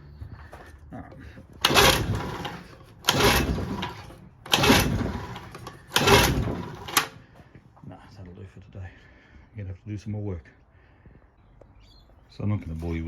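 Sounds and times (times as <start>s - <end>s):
outboard motor recoil starter pulls: 1.2s - 7.3s.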